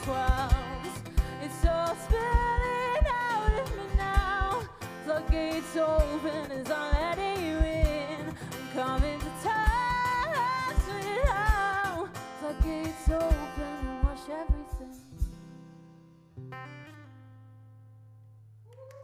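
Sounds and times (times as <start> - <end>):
person singing with vibrato: 0.0 - 15.3
guitar: 0.0 - 19.0
low drum beats: 0.3 - 4.7, 6.9 - 8.0, 12.6 - 15.5.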